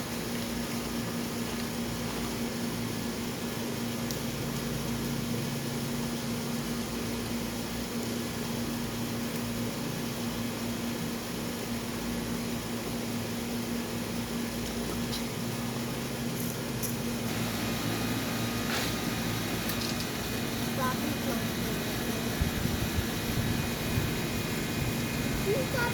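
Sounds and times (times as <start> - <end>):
low mechanical hum: 0.0 - 25.9
even hiss: 16.3 - 25.9.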